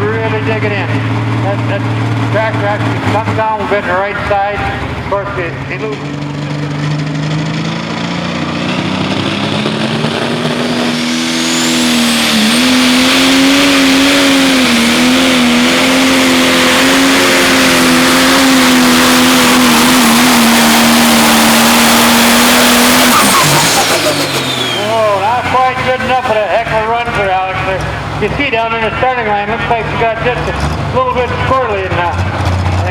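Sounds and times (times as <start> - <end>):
diesel engine under full load: 0.0 - 32.9
thin high whistle: 23.0 - 25.2.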